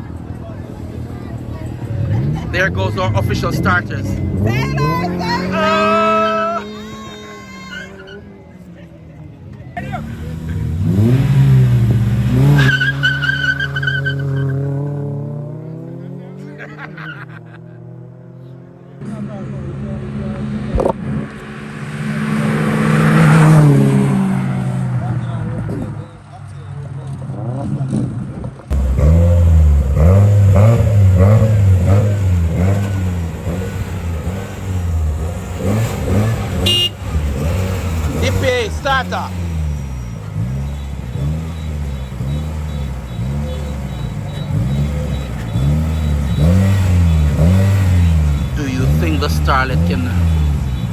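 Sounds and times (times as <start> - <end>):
race car accelerating: 0.0 - 50.9
tyre squeal: 4.0 - 8.4, 12.4 - 14.7, 35.6 - 50.9.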